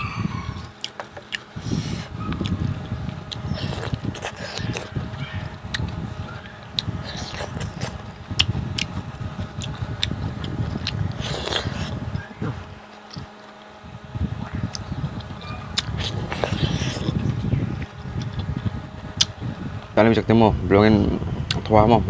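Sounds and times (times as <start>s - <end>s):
person chewing food: 0.6s - 2.6s, 3.3s - 5.0s, 6.8s - 13.7s, 14.7s - 18.6s
small mouth clicks: 3.3s - 4.9s, 6.8s - 8.9s, 9.6s - 12.0s, 14.7s - 18.6s
slurp: 3.4s - 4.9s, 6.8s - 8.0s, 10.8s - 12.0s, 15.8s - 17.2s.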